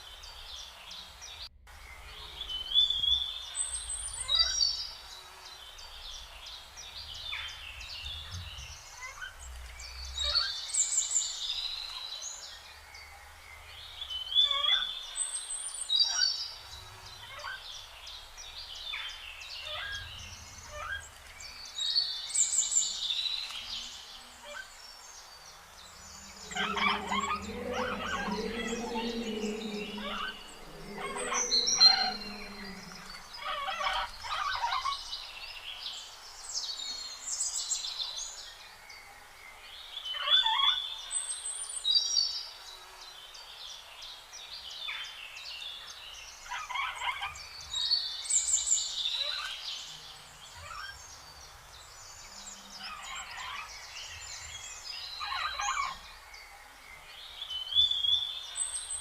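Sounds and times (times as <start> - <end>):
small birds chirping: 0.0 - 38.6.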